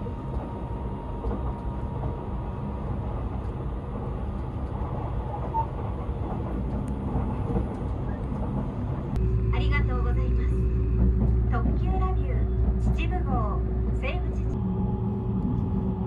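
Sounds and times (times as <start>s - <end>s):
train cabin rumble: 0.0s - 16.0s.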